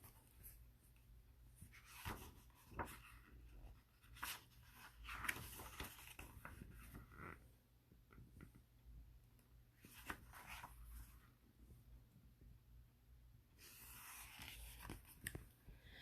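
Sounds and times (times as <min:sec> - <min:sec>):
paper rustling: 0:01.6 - 0:07.4, 0:09.8 - 0:11.2.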